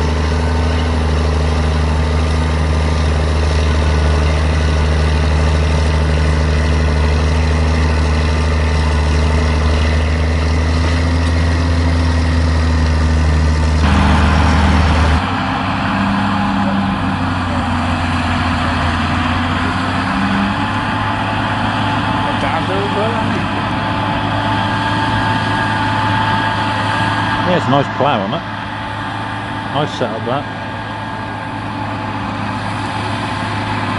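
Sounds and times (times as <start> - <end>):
tractor engines running under load: 0.0 - 33.9.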